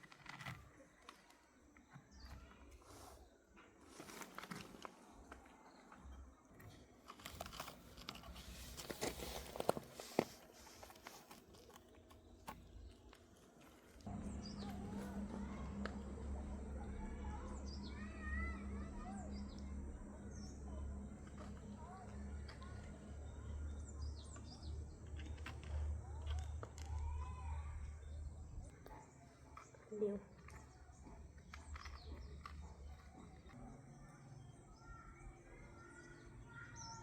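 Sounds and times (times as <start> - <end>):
small birds chirping: 0.0 - 37.0
steady low hum: 12.0 - 36.7.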